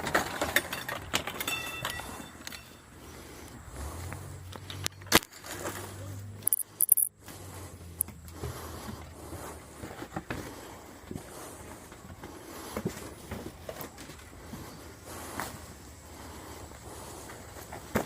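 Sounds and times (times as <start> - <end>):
sharp clicks: 6.4 - 7.1.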